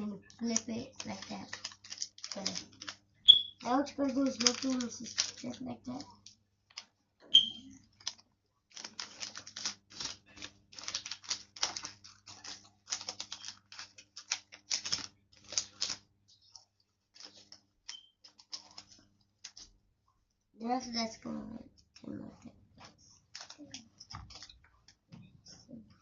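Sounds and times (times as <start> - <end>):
paper folding and creasing: 0.4 - 3.0, 3.6 - 6.0, 8.0 - 16.0, 16.6 - 19.7, 22.8 - 25.1.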